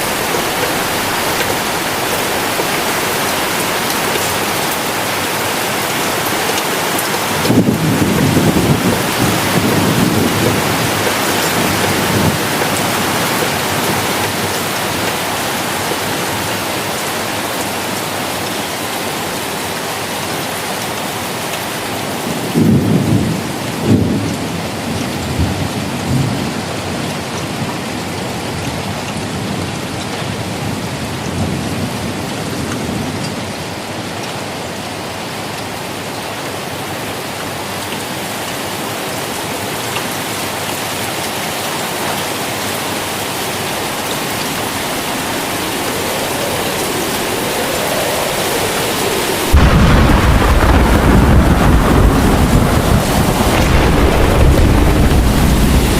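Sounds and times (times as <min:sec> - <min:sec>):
thunder rumbling: 0:00.0 - 0:18.2, 0:43.2 - 0:55.9
steady rain: 0:00.0 - 0:55.9
sharp thunderclaps: 0:07.0 - 0:16.1, 0:43.9 - 0:55.9.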